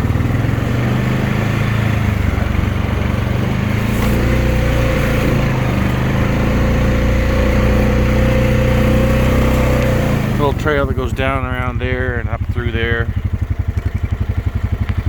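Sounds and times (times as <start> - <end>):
engine whine: 0.0 - 15.0
quad bike engine running: 0.0 - 15.0.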